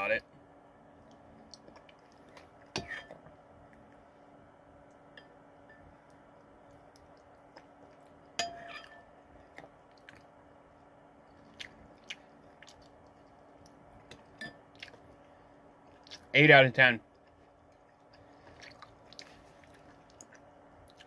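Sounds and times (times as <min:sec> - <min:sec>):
person chewing food: 0:01.0 - 0:04.1, 0:05.8 - 0:08.4, 0:09.2 - 0:16.3, 0:17.1 - 0:21.0.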